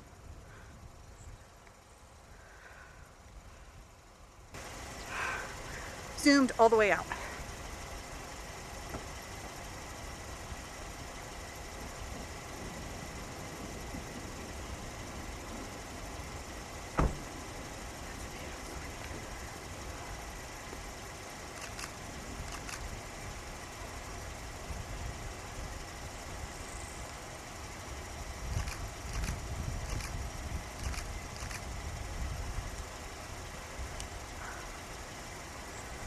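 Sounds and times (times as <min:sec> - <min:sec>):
car engine idling: 0:00.0 - 0:36.0
hiss and low rumble: 0:00.0 - 0:36.0
faint ticks: 0:21.5 - 0:23.0, 0:28.4 - 0:30.2, 0:30.8 - 0:31.7, 0:33.9 - 0:34.9.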